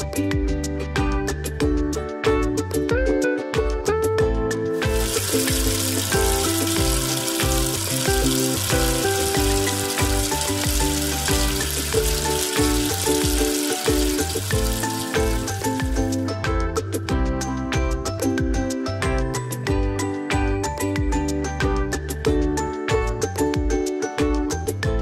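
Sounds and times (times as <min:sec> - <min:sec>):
background music: 0:00.0 - 0:25.0
food sizzling in a pan: 0:04.8 - 0:16.3.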